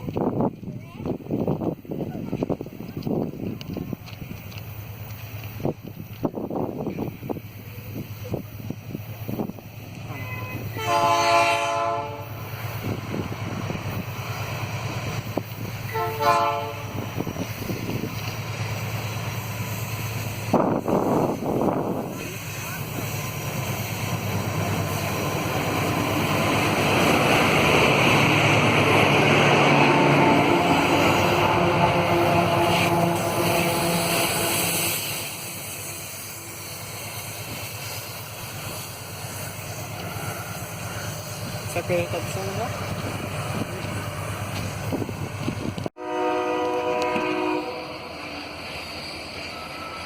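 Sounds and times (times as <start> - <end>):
locomotive engine droning: 1.5 - 50.0
train horn: 10.1 - 12.3, 15.9 - 17.2, 29.7 - 35.0, 46.0 - 48.2
background hiss: 32.7 - 41.7.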